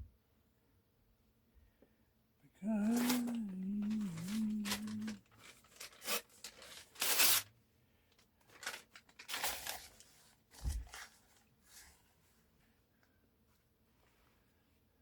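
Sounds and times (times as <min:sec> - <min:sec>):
man humming: 0:02.4 - 0:05.2
newspaper tearing: 0:02.8 - 0:07.5, 0:08.5 - 0:11.2.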